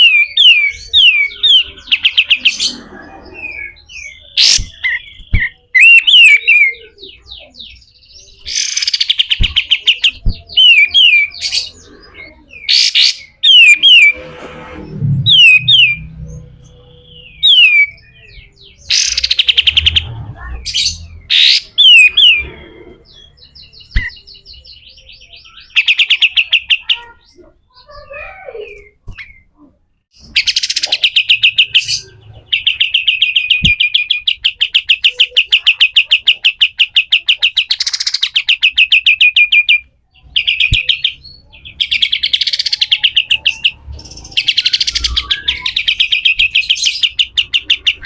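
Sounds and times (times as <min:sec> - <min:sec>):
songbird whistling: 0:03.5 - 0:07.1, 0:44.4 - 0:48.0.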